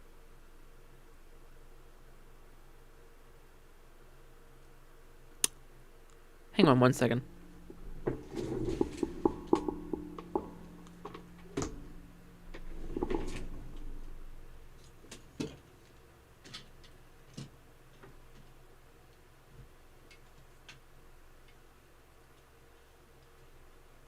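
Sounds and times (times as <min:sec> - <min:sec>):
equipment clattering: 0:07.3 - 0:15.6
equipment clicks and knocks: 0:07.4 - 0:15.6.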